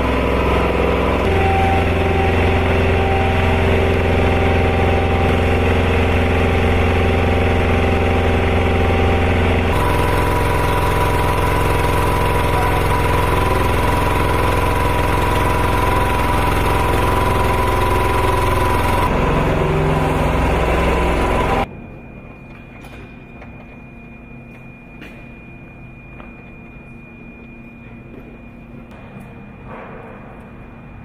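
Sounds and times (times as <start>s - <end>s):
machinery whine over low hum: 0.0s - 31.0s.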